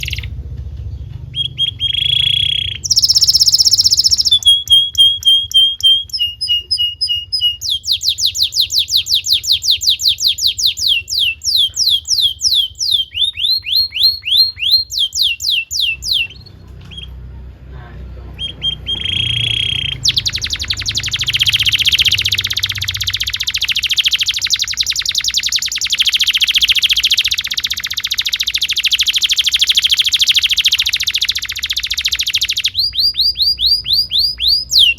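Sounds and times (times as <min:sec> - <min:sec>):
canary singing: 0:00.0 - 0:17.3, 0:18.2 - 0:34.9.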